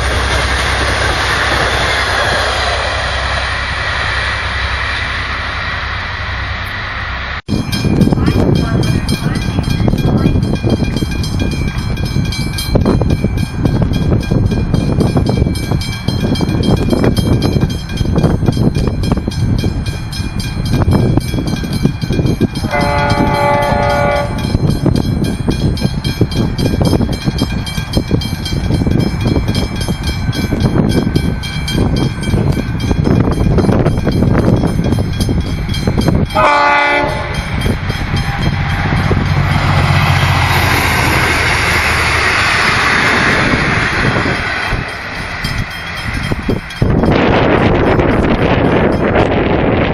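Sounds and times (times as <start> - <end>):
train wheels clattering on rails: 0.0 - 3.9, 7.5 - 49.9
train hiss and low hum: 0.0 - 49.9
train horn blast: 22.7 - 24.5, 36.3 - 37.5.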